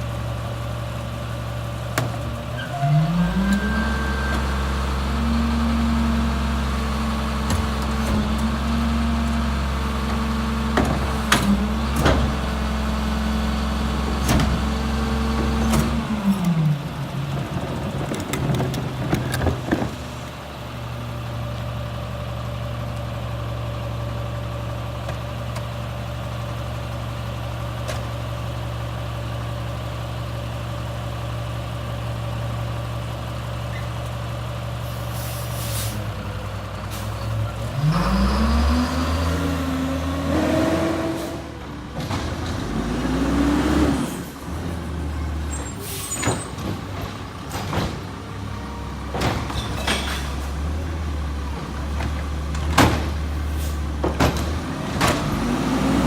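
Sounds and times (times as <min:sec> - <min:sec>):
garbage truck diesel engine: 0:00.0 - 0:56.0.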